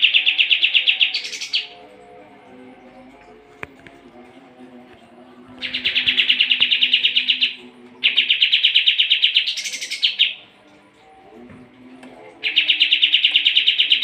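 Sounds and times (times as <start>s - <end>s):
bird singing rapid trills: 0.0s - 1.8s, 5.6s - 10.4s, 12.4s - 14.0s.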